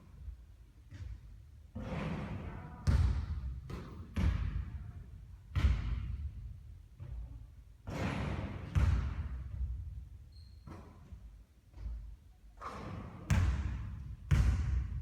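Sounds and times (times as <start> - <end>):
basketball bouncing thuds: 2.8 - 4.6, 8.6 - 9.8, 13.3 - 15.0.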